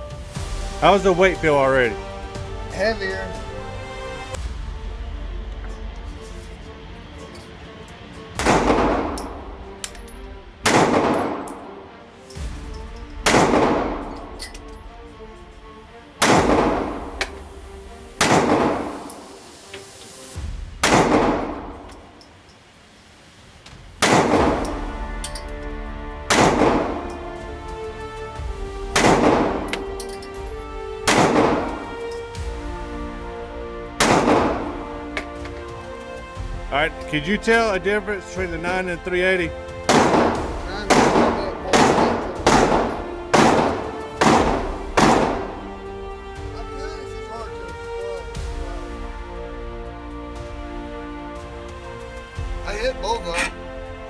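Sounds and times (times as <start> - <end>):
background music: 0.0 - 54.0
pistol shots with echo: 8.4 - 12.0, 13.2 - 14.8, 16.2 - 17.4, 18.2 - 19.4, 20.8 - 22.2, 24.0 - 25.4, 26.3 - 27.3, 28.9 - 30.4, 31.0 - 32.2, 34.0 - 35.4, 39.8 - 45.8.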